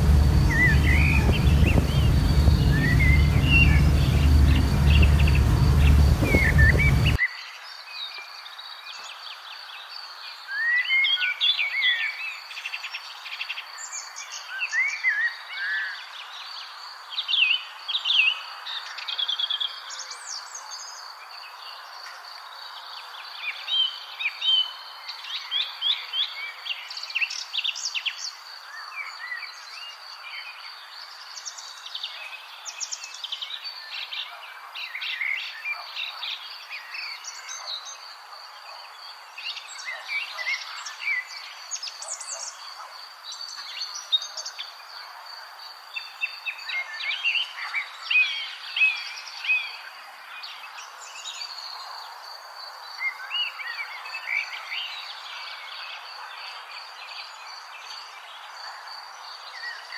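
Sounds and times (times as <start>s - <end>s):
loud low rumble: 0.0s - 7.2s
small birds chirping and trilling: 0.0s - 22.0s.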